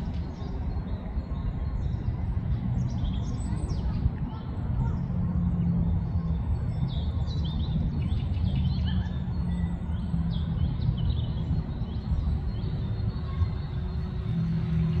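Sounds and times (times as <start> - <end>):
low background rumble: 0.0 - 15.0
small birds chirping: 0.0 - 15.0.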